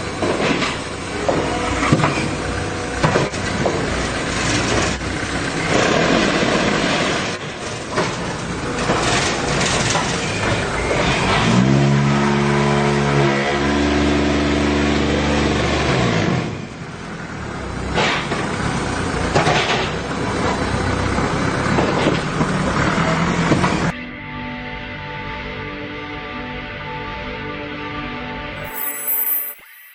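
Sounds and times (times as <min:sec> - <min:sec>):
machine clatter: 0:03.0 - 0:10.7
engine revving and winding down: 0:10.4 - 0:16.7.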